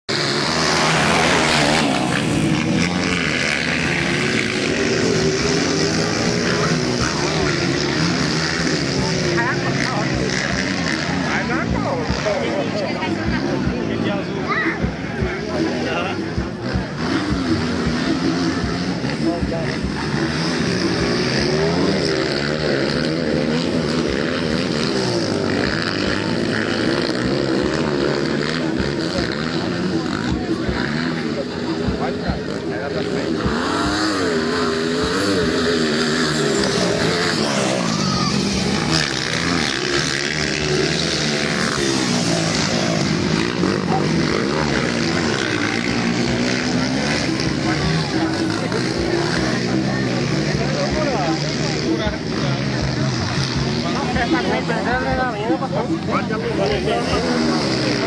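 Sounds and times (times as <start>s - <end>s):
motorcycle engines revving: 0.0s - 58.0s.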